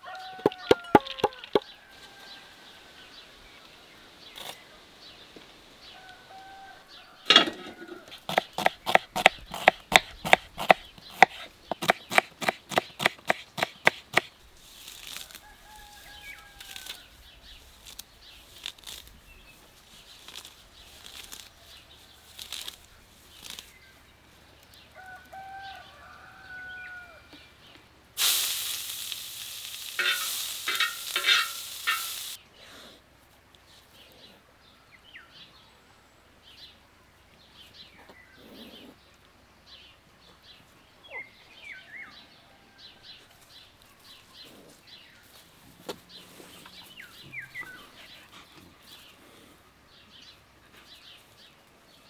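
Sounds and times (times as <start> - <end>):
bird calls: 0.0 - 14.5, 29.9 - 32.4, 39.8 - 49.2
fast sharp knocks: 0.4 - 1.6, 8.3 - 14.3.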